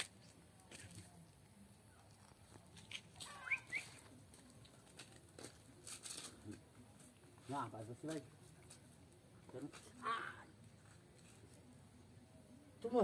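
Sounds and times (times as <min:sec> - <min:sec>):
bird chirps: 0:03.2 - 0:04.1.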